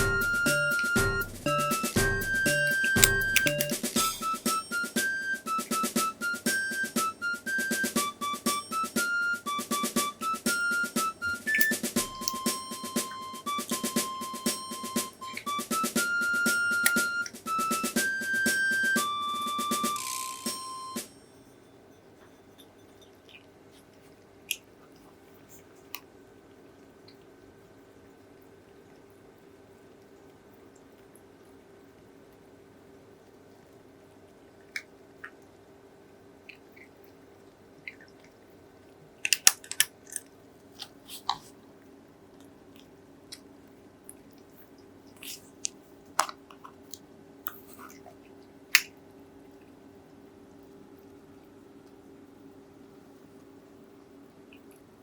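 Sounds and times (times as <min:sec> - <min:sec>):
faint steady hum: 0:00.0 - 0:55.0
cat crunching dry kibble: 0:37.9 - 0:41.6.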